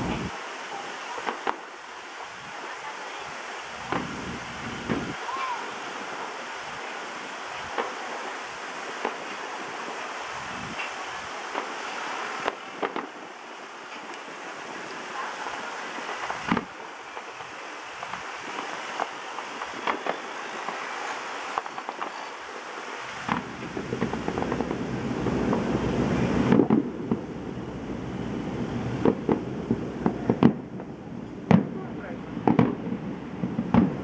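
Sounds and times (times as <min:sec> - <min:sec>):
low rumble: 0:00.0 - 0:00.3, 0:23.4 - 0:34.0
distant fireworks bangs and pops: 0:00.0 - 0:03.2, 0:03.8 - 0:10.1, 0:10.7 - 0:27.4, 0:28.6 - 0:34.0
steady rushing background noise: 0:00.0 - 0:34.0.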